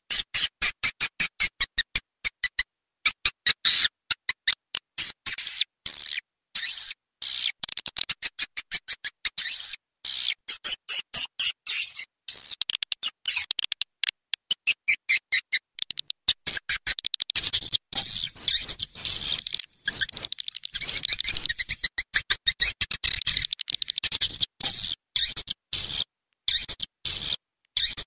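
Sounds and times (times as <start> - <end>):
swiftlet calls high chirps: 17.4 - 24.4.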